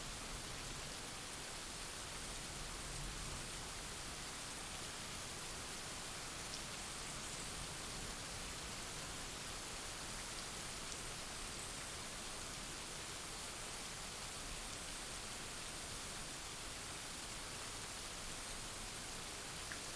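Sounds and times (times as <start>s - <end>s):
steady rain hiss: 0.0s - 19.9s
faint raindrop ticks: 19.6s - 19.9s.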